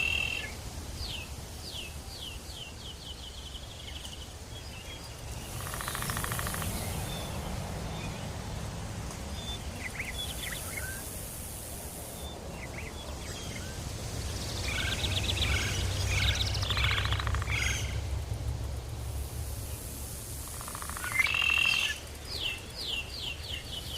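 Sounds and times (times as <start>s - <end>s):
bird chirps and calls: 0.0s - 8.2s, 9.3s - 11.2s, 14.4s - 18.0s, 20.6s - 23.9s
steady low rumble: 4.6s - 20.9s.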